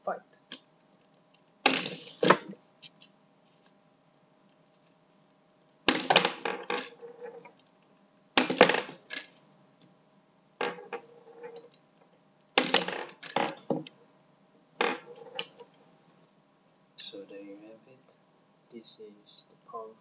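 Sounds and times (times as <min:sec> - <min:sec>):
toy shooting marbles: 0:01.6 - 0:02.4, 0:05.9 - 0:06.9, 0:12.6 - 0:13.6
marbles striking bottle target: 0:01.7 - 0:02.5, 0:05.9 - 0:06.9, 0:08.4 - 0:09.0, 0:12.6 - 0:13.7.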